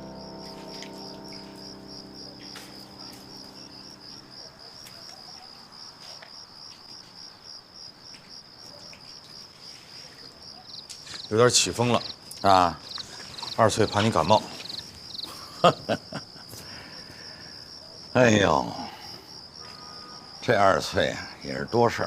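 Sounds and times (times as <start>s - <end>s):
background music: 0.0s - 4.7s
crickets chirping: 0.0s - 22.0s.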